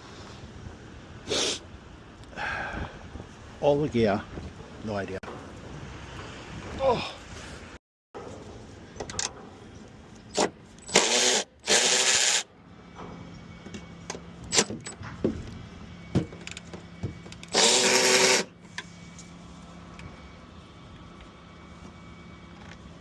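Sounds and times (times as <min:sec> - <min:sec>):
power tool running: 0:10.4 - 0:12.5, 0:17.4 - 0:18.5.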